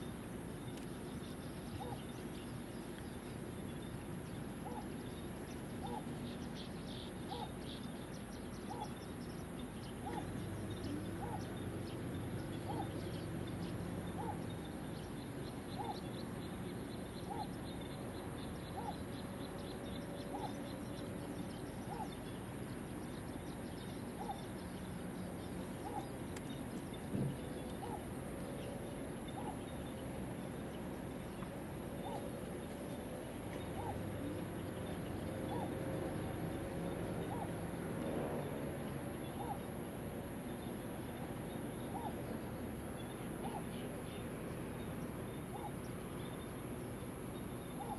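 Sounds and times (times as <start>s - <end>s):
faint high chirping: 0.0s - 35.9s, 40.4s - 47.9s
bird hooting: 1.6s - 2.6s, 4.6s - 6.3s, 6.9s - 7.9s, 8.6s - 9.2s, 9.9s - 13.3s, 14.0s - 16.2s, 16.9s - 22.5s, 23.9s - 30.7s, 31.4s - 36.0s, 36.8s - 37.6s, 39.2s - 39.7s, 41.8s - 42.3s, 43.2s - 44.2s, 45.3s - 46.3s, 47.6s - 47.9s
thump: 27.1s - 27.4s.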